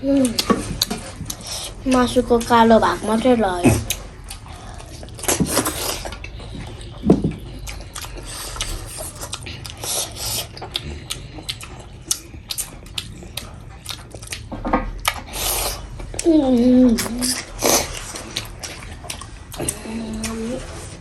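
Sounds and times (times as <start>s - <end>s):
chewing and mouth smacking: 0.2s - 21.0s.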